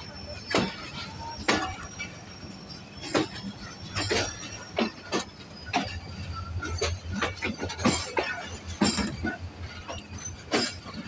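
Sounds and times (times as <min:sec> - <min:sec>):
train low rumble: 0:00.0 - 0:11.0
wheels clanking over rail joints: 0:00.0 - 0:11.0.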